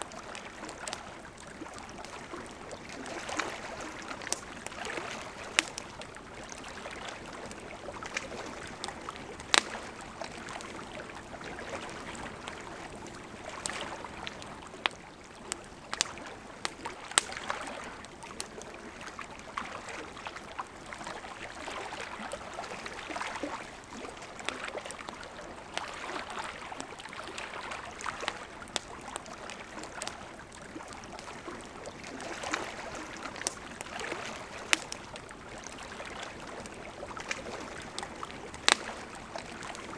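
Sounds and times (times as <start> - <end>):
burning wood crackling and popping: 0.0 - 19.6, 22.6 - 39.9
campfire flames hissing: 0.1 - 19.2, 27.7 - 39.9.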